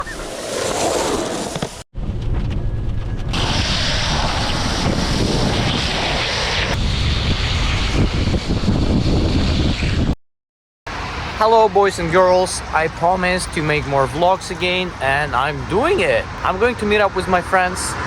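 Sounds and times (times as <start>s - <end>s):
wind buffeting microphone: 2.0s - 10.2s.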